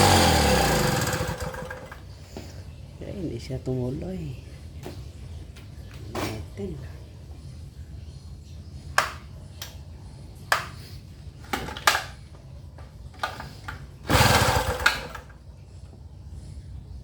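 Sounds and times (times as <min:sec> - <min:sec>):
recoil starter pull cranking engine: 0:00.0 - 0:02.1, 0:13.2 - 0:15.4
clicks and knocks of handling: 0:11.4 - 0:13.8.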